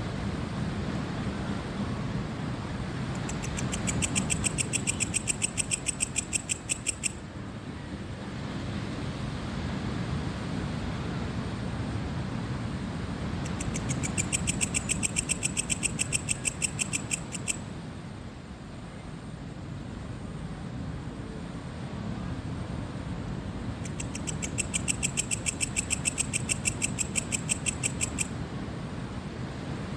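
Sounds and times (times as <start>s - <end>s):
cricket chirping: 3.2s - 7.3s, 13.5s - 17.7s, 23.8s - 28.4s.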